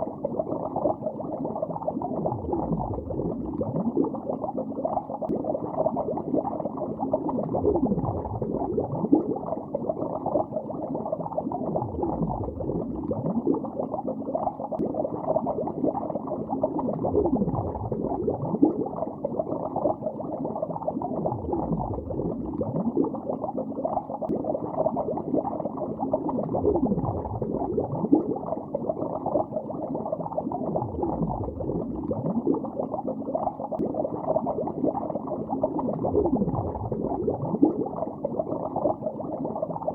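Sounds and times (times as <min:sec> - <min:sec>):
underwater bubbling: 0:00.0 - 0:39.9.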